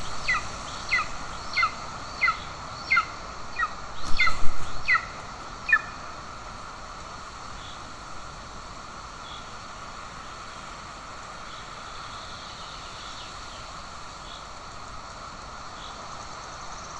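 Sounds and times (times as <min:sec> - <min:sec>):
loud bird call: 0:00.0 - 0:06.0
distant bird chirps: 0:00.0 - 0:06.2
outdoor background hiss: 0:00.0 - 0:16.9.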